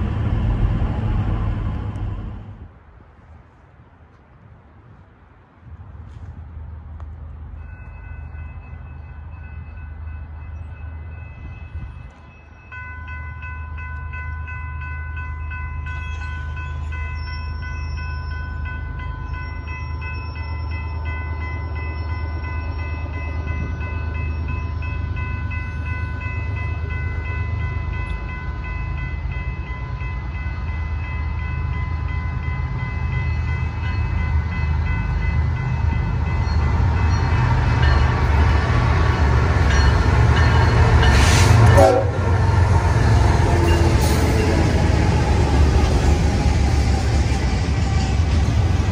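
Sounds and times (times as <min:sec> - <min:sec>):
train engine and rail rumble: 0:00.0 - 0:48.9
locomotive air horn blast: 0:41.1 - 0:42.5.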